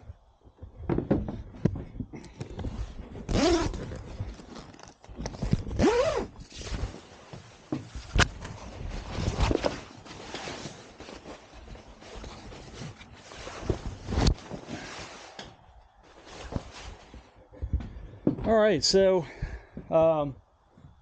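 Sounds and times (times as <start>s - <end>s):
scraping and rustling: 0.8s - 17.4s.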